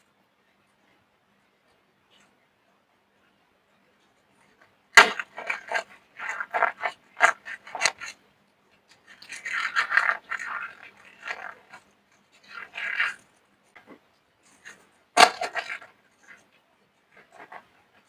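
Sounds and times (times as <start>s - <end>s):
soap crunching and cracking: 5.0s - 8.2s, 8.9s - 13.3s, 14.6s - 15.9s.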